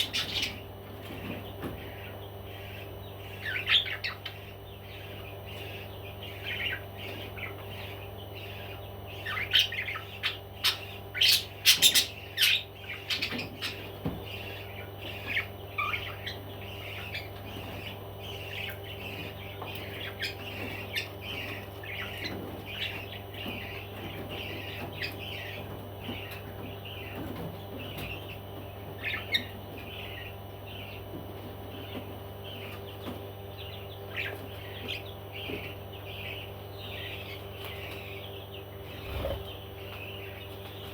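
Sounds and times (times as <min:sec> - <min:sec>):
parrots chirping: 0:00.0 - 0:31.1
parrots squawking: 0:05.0 - 0:19.2.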